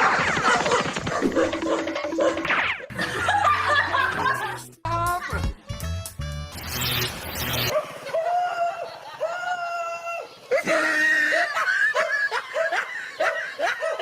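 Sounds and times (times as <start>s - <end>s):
high-pitched laughter: 7.7s - 14.0s.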